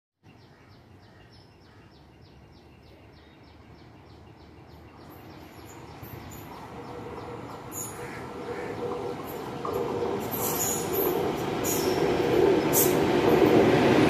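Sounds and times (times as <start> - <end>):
distant train rumble: 3.0 - 14.0.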